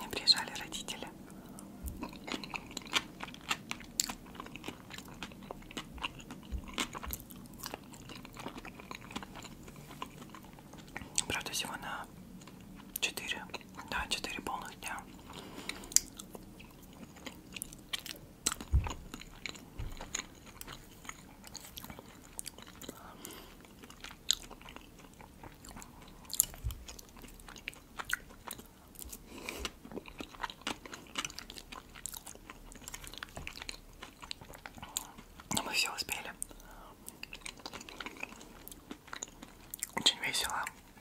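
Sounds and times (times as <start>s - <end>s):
chewing and biting food: 1.3s - 11.5s, 12.3s - 41.0s
soft low thumps: 18.6s - 20.2s.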